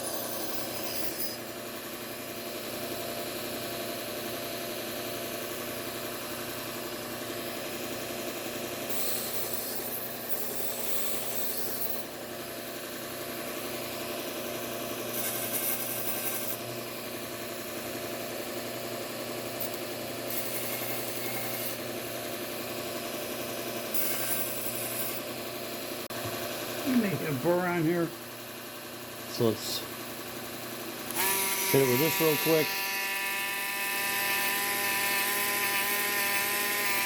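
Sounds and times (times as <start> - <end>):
knife blade grinding on belt: 0.0 - 1.5, 8.9 - 12.1, 15.1 - 16.6, 19.6 - 21.9, 23.9 - 25.3
belt sander motor hum: 29.4 - 37.0.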